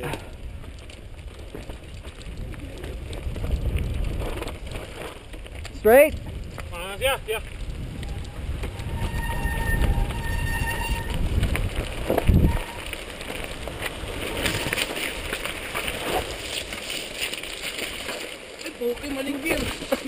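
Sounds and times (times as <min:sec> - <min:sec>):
bike rattling over rough trail: 0:00.0 - 0:20.0
wind rumbling on microphone: 0:00.0 - 0:20.0.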